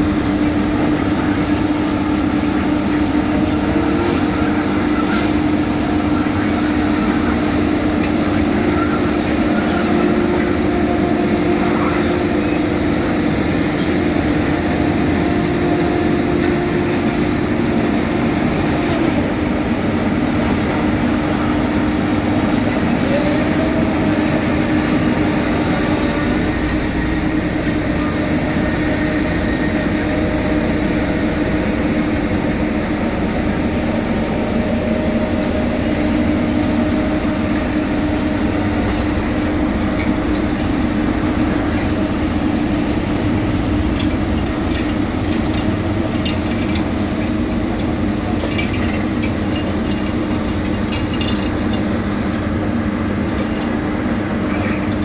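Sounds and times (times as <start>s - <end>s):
diesel paving machinery droning: 0.0s - 55.0s.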